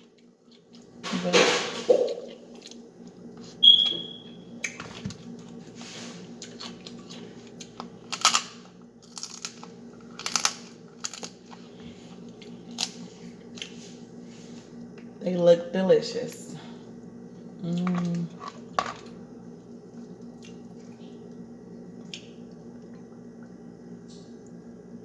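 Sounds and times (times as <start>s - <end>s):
faint steady hum: 0.0s - 25.0s
close-up chewing: 5.3s - 8.0s
shell crunching and crackling: 6.5s - 13.6s.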